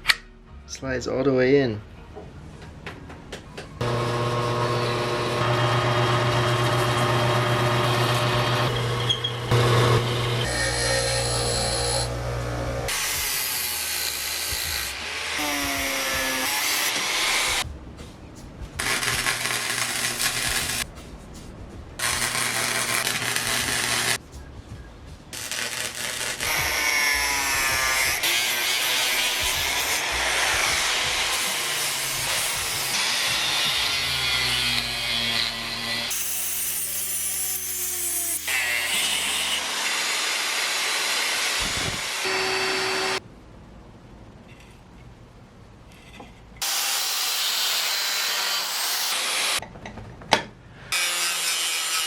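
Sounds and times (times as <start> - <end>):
power tool humming: 3.8 - 17.6, 38.5 - 43.2.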